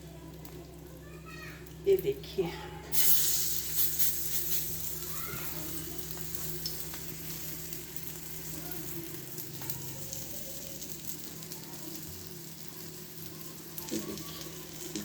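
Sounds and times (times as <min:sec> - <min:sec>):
steady low hum: 0:00.0 - 0:13.9
patties sizzling in oil: 0:00.0 - 0:15.0
faint crackles: 0:02.9 - 0:15.0.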